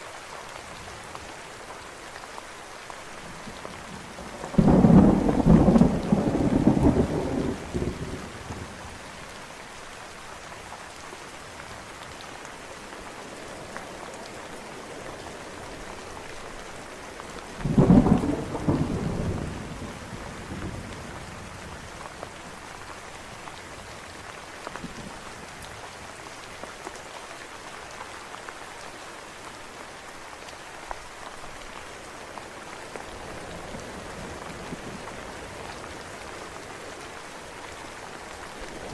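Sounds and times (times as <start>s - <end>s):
steady rain: 0.0s - 38.9s
thunder rumbling: 4.2s - 8.7s, 17.6s - 20.9s.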